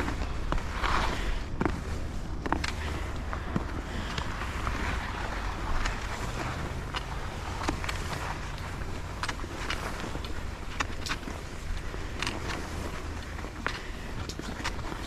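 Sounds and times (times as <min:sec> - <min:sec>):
skis sliding over snow: 0:00.0 - 0:15.0
wind rumbling on microphone: 0:00.0 - 0:15.0.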